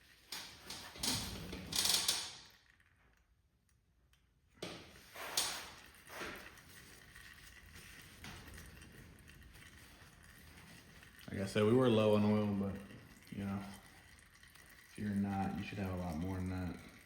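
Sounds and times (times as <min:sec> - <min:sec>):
objects knocking and rustling: 0:04.5 - 0:11.3.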